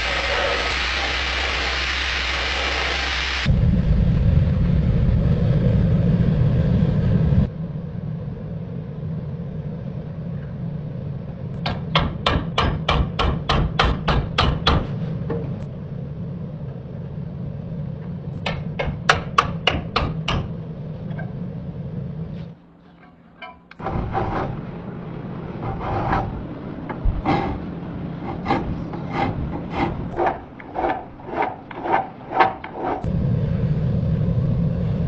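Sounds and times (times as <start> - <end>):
steady low hum: 0.0 - 35.0
hammer tapping metal: 11.6 - 14.9, 18.4 - 20.5
rough scraping rub: 22.3 - 33.1.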